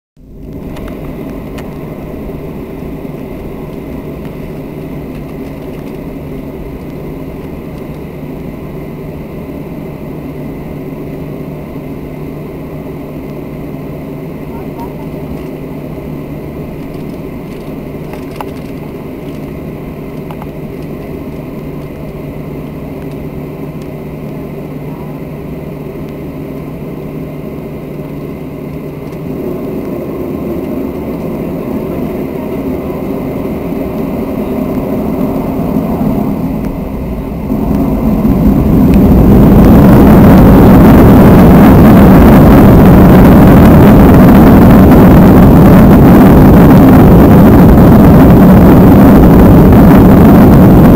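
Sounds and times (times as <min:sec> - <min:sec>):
jet engines spooling up: 0:00.2 - 0:50.9.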